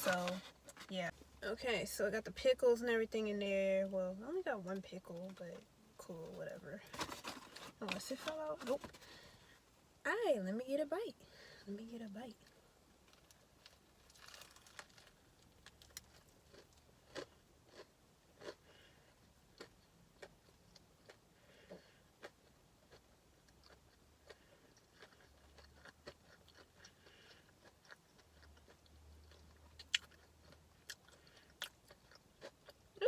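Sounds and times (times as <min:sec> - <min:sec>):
crunching while chewing food: 0:13.1 - 0:33.0.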